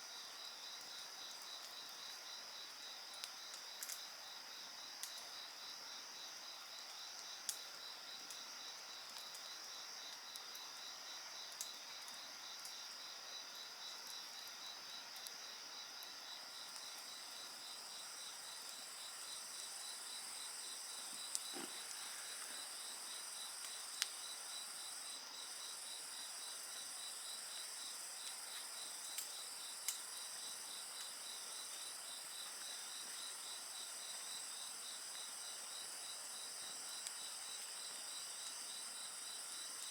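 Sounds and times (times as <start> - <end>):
crickets chirping: 0.0 - 39.9
bonfire crackling and popping: 16.7 - 24.8.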